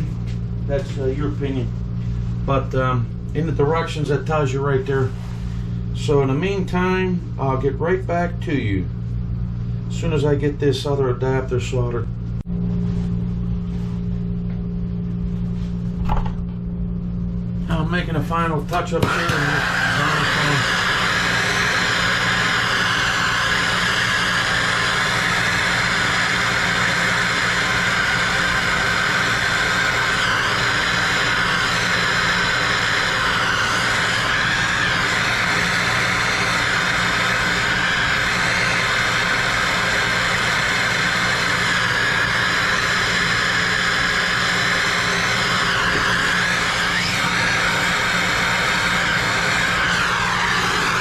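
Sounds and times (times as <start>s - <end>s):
soldering torch burning: 18.7s - 51.0s.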